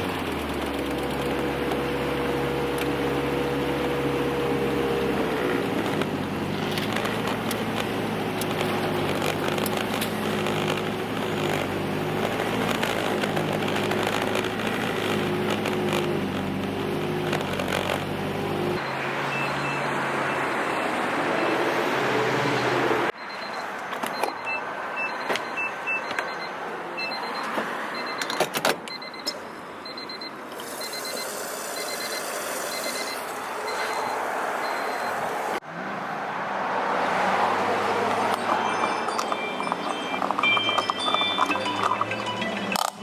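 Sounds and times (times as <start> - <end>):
car engine and road noise: 0.0 - 43.0
short high electronic beeps: 29.9 - 35.2, 38.6 - 42.8.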